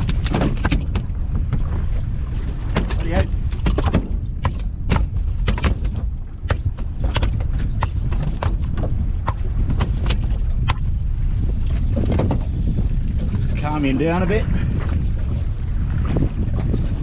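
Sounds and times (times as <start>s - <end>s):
fish thrashing on deck: 0.0s - 1.7s, 2.4s - 10.8s
boat rumble: 0.0s - 17.0s
wind: 0.0s - 17.0s.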